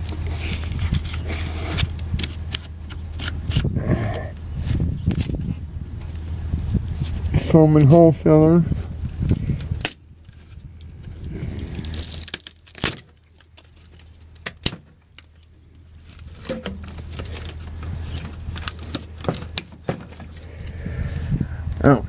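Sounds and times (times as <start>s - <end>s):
crinkly tearing and rustling: 0.0s - 8.0s, 9.0s - 20.5s
steady low hum: 0.0s - 22.0s
sharp cracks and snaps: 9.2s - 20.4s.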